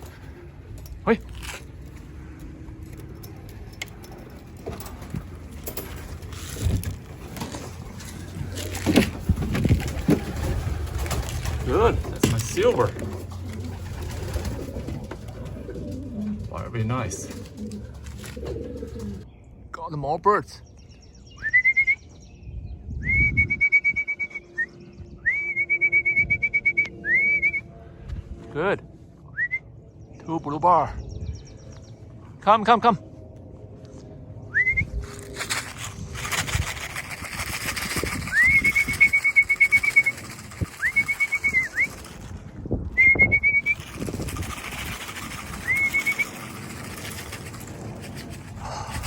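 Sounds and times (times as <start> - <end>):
pigeon wings flapping: 4.7 - 19.2, 35.1 - 42.6, 43.2 - 49.0
whistle blown in trilled calls: 21.4 - 22.0, 23.0 - 27.6, 38.2 - 42.1, 43.0 - 43.9, 45.5 - 46.4.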